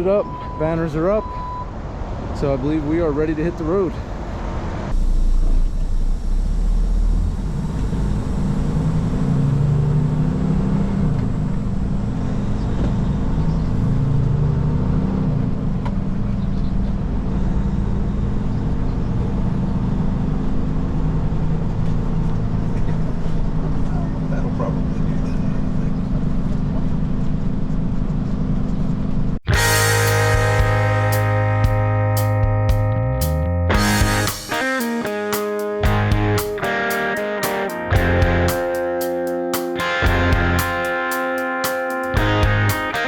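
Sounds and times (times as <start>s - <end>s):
truck diesel engine rumbling: 29.3s - 34.5s.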